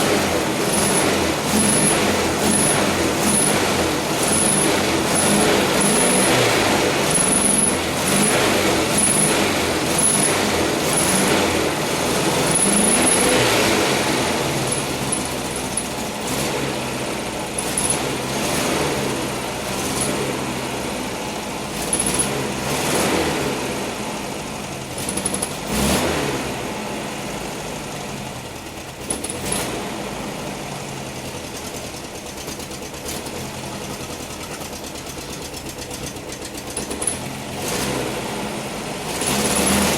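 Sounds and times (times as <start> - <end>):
car engine running: 0.0 - 26.0, 26.8 - 39.9.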